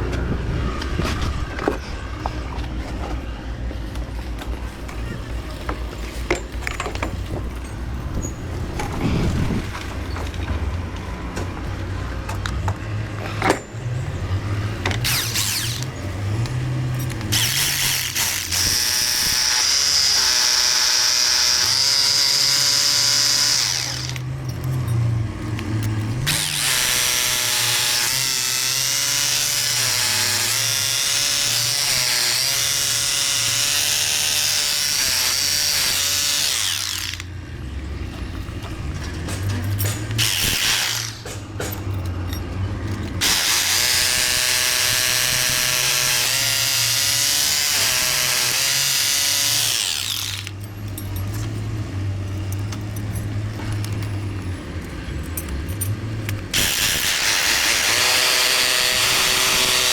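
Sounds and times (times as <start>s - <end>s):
motor pitch rising and falling: 15.0s - 16.0s.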